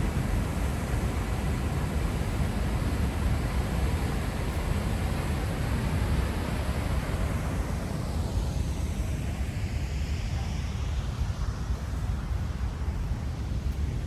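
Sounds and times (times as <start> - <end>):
river rushing: 0.0 - 10.1.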